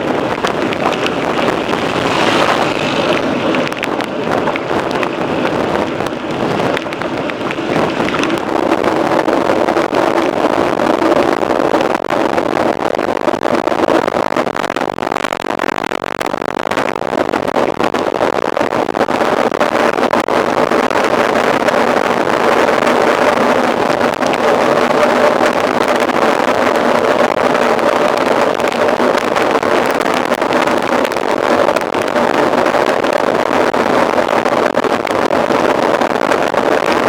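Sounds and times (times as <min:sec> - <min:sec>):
bike tyres rolling: 0:00.0 - 0:11.3
wind rushing over microphone: 0:00.0 - 0:15.4, 0:16.6 - 0:37.0.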